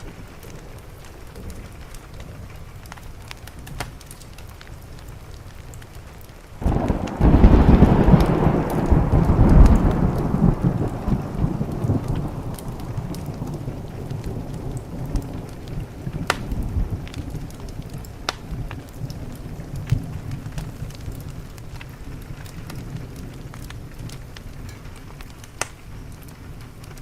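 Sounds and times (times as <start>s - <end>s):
steady rain: 0.0s - 27.0s
wood fire crackling: 0.0s - 27.0s
thunder rumbling: 6.6s - 27.0s.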